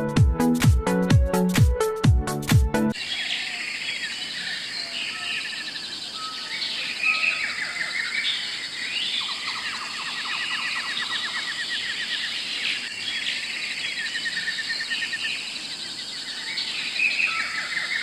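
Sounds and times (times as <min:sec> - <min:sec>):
electronic dance music: 0:00.0 - 0:02.9
birds chirping and trilling: 0:02.9 - 0:18.0
high insect hum: 0:03.0 - 0:18.0.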